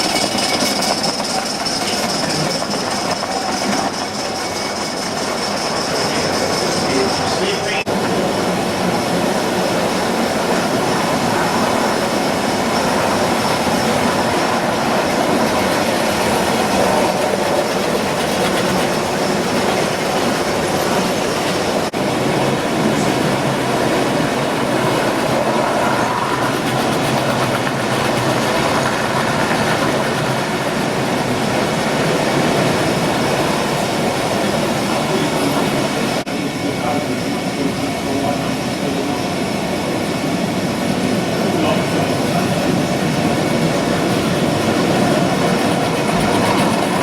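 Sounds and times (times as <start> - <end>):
model train wheels clattering: 0.0 - 7.7.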